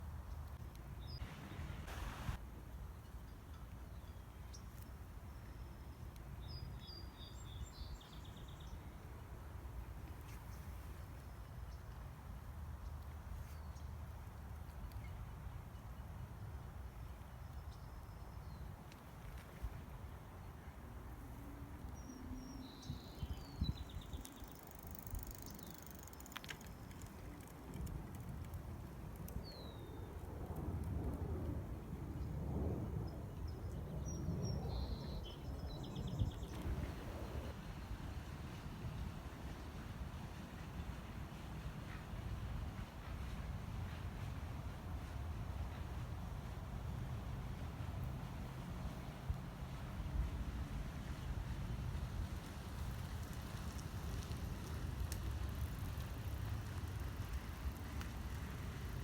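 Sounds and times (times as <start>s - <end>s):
songbirds singing: 21.9s - 27.0s
steady low rumble: 36.1s - 37.6s
low outdoor rumble: 36.1s - 59.0s.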